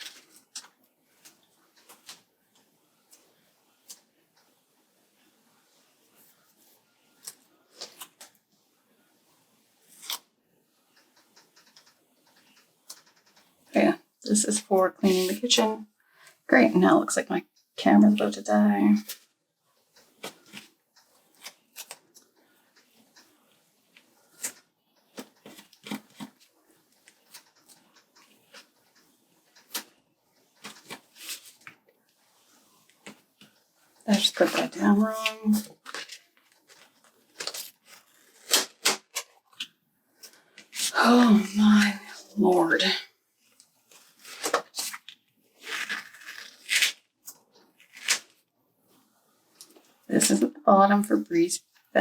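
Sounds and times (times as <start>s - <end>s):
paper stickers rustling and ripping: 34.1s - 39.7s, 43.9s - 47.0s.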